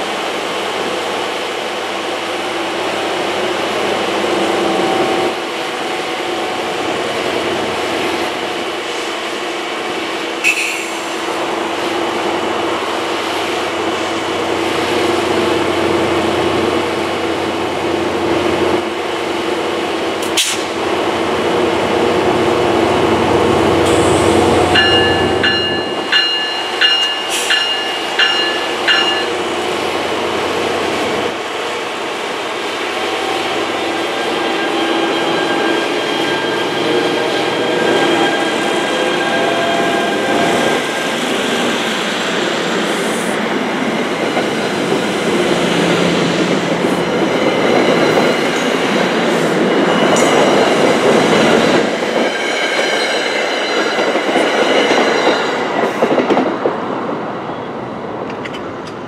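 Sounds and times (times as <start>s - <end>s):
diesel locomotive engine: 0.0s - 59.0s
locomotive bell ringing: 24.7s - 29.4s.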